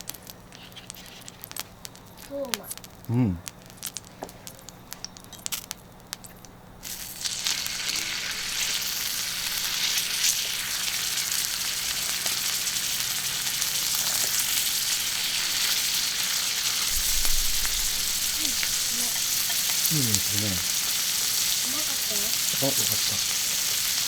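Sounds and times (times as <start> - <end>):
steak sizzling on griddle: 0.0 - 24.0.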